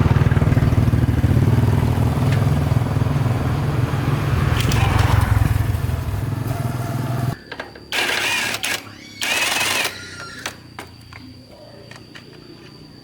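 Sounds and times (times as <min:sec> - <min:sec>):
engine running: 0:00.0 - 0:07.4.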